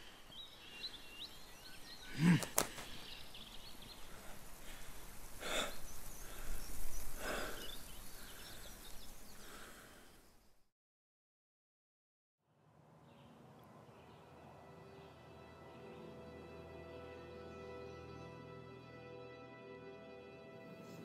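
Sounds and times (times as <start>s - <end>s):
small birds chirping: 0.0s - 10.7s, 13.0s - 15.6s
man sighing: 2.1s - 2.9s
man breathing heavily: 2.1s - 10.2s.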